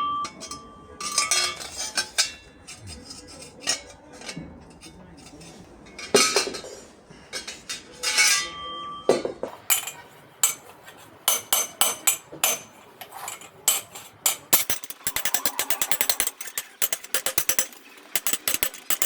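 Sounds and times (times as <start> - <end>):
hammer striking metal: 11.3 - 19.0.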